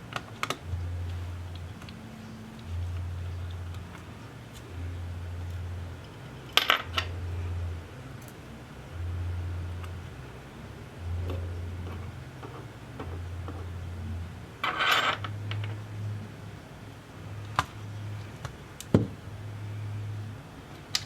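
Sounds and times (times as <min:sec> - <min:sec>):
low hum switching on and off: 0:00.0 - 0:16.5.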